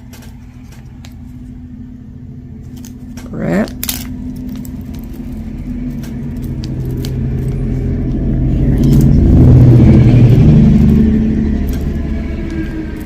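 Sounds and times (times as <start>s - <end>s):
vehicle passing: 4.1s - 13.0s.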